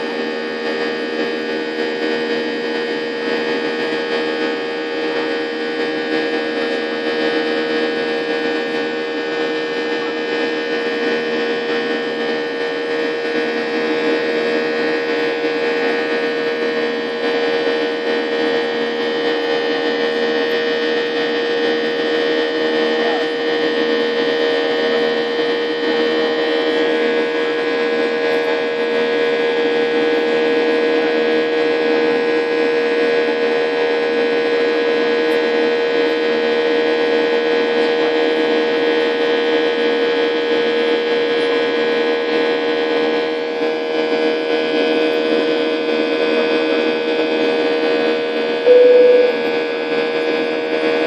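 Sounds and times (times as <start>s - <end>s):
jet engines and airflow drone: 0.0s - 51.0s
low hum tone: 48.6s - 49.8s.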